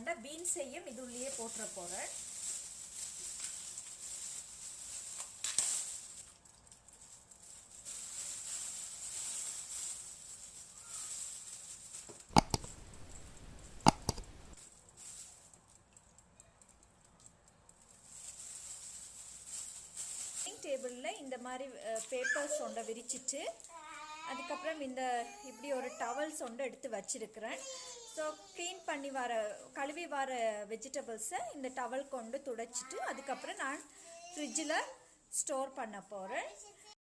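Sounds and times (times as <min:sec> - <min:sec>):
beans rustling: 0:00.5 - 0:16.0, 0:17.6 - 0:23.7
sharp knocks: 0:12.3 - 0:14.6.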